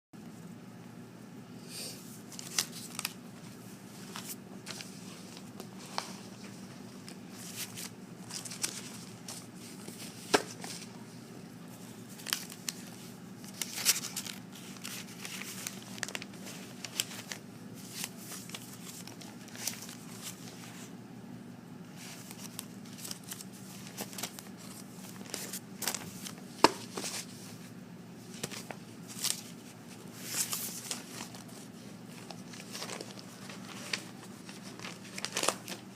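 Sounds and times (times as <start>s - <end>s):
steady low hum: 0.2s - 35.9s
paper rustling and shuffling: 2.0s - 21.0s, 21.9s - 35.9s.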